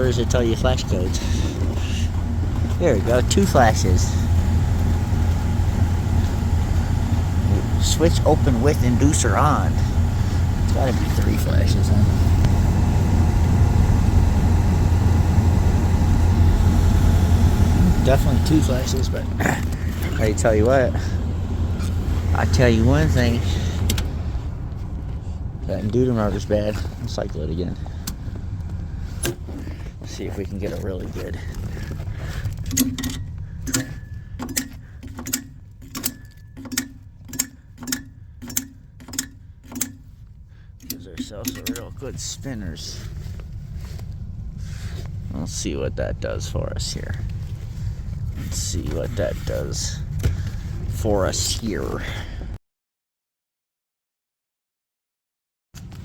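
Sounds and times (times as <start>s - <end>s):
heating unit clicking and knocking: 0.0s - 25.2s, 27.8s - 30.6s, 31.5s - 42.4s
hvac equipment humming: 0.0s - 52.6s.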